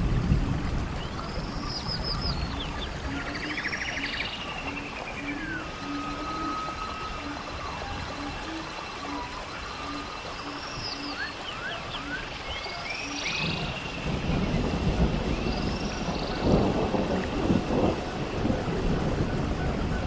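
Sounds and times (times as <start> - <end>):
low rumbling noise: 0.0 - 20.0
high chirping calls: 1.1 - 16.6.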